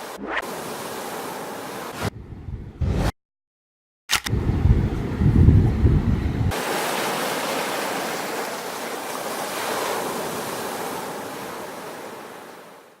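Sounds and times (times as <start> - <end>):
sea surf washing onto beach: 0.0 - 2.0, 6.5 - 13.0.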